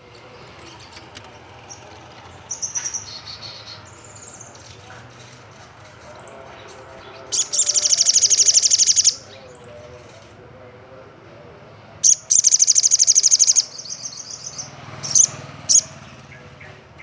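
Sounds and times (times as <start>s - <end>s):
bird high-pitched trills: 7.2s - 9.6s, 12.0s - 16.0s.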